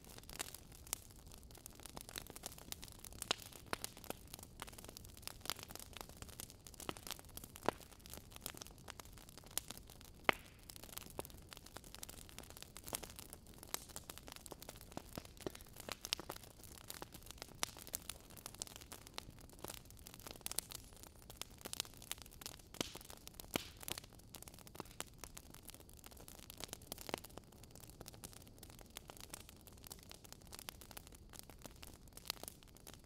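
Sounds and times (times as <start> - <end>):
fire crackling: 0.0 - 33.0.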